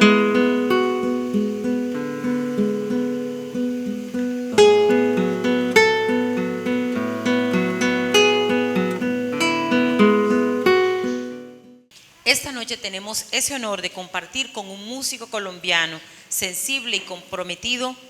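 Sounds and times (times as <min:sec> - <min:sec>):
acoustic guitar melody: 0:00.0 - 0:11.9.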